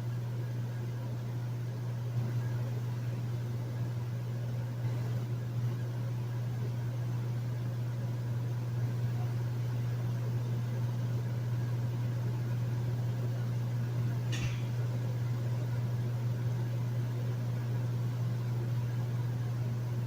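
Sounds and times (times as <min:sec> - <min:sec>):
air conditioner humming: 0:00.0 - 0:20.0.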